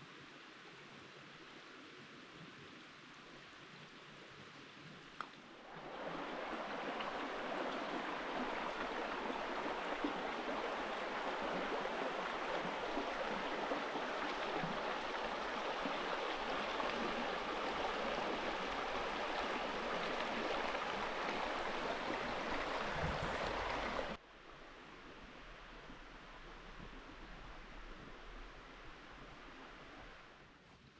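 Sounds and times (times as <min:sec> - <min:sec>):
river flowing over rocks: 0:05.6 - 0:24.2.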